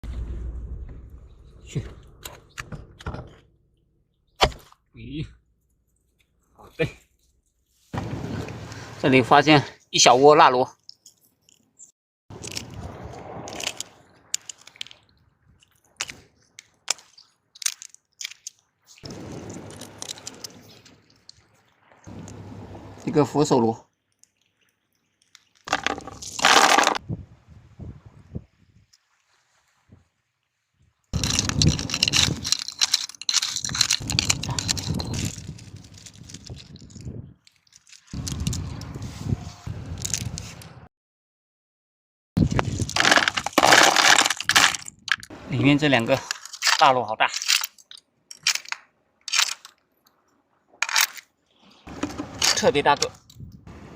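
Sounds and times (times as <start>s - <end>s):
snail shells clacking on rock: 12.3s - 12.8s, 13.5s - 18.7s, 19.3s - 21.4s, 24.1s - 27.0s, 31.2s - 38.9s, 42.5s - 45.3s, 46.2s - 49.8s
rustling handling noise: 25.2s - 27.0s, 31.2s - 39.3s, 42.4s - 45.3s, 46.1s - 49.8s, 50.8s - 53.5s.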